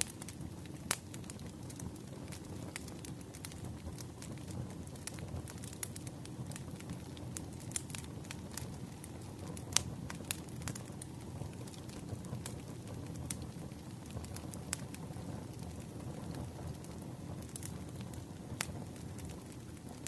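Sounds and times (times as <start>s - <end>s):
campfire crackling: 0.0s - 20.0s.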